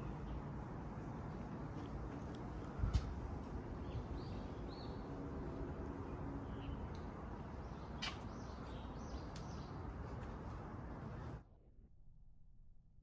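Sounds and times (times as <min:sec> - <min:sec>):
small birds chirping: 0:02.5 - 0:05.3, 0:05.9 - 0:11.4.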